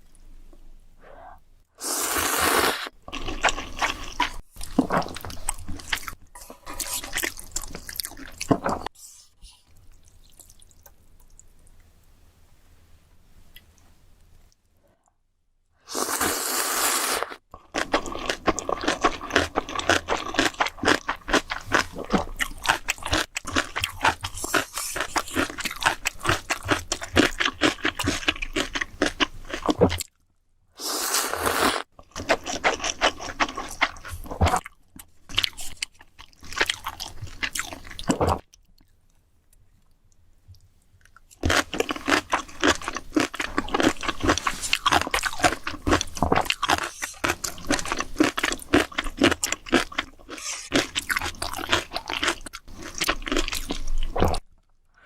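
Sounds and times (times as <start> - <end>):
short hissing bursts: 1.8 - 2.9
crunchy wet chewing: 32.0 - 39.0, 40.5 - 54.4.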